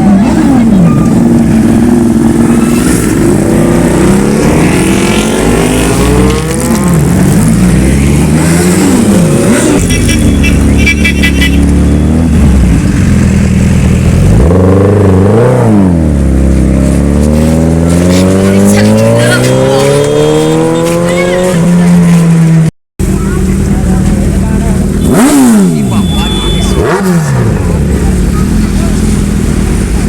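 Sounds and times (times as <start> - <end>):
superbike engines revving: 0.0 - 30.0
rapid high beeps: 25.8 - 26.8.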